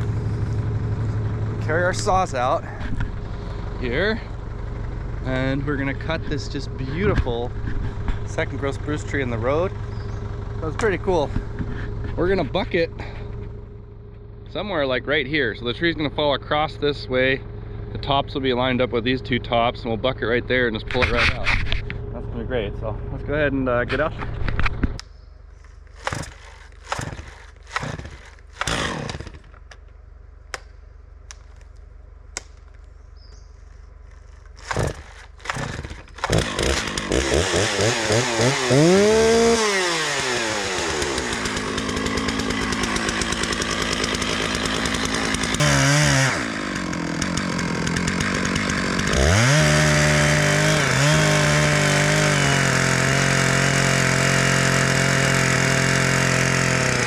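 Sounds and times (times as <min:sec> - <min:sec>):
chainsaw revving: 0:00.0 - 0:13.4, 0:25.9 - 0:29.6, 0:34.1 - 0:57.0.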